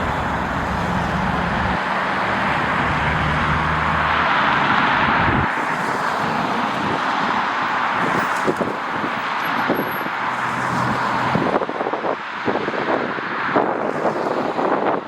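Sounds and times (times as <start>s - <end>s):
wind buffeting microphone: 0.0s - 5.6s, 10.9s - 15.0s
jet engines rushing: 0.0s - 6.8s.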